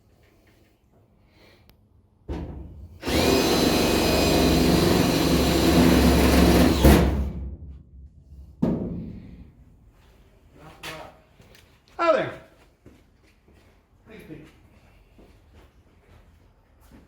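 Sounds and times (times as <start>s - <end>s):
power tool whining: 3.0s - 7.3s
knock: 8.6s - 9.1s.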